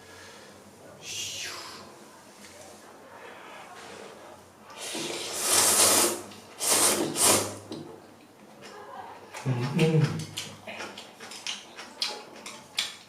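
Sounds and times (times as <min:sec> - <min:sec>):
noodles being slurped: 0:04.8 - 0:07.6.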